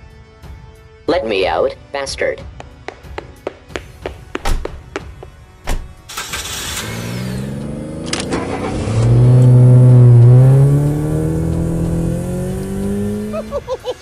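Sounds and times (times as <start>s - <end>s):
car engine revving: 6.1s - 13.7s.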